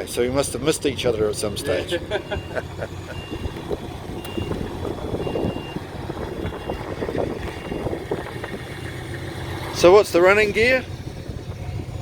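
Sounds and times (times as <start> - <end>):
vehicle engine idling: 0.0 - 12.0
reversing alarm beeps: 2.2 - 3.6, 4.2 - 5.8, 6.4 - 6.9, 7.5 - 8.0.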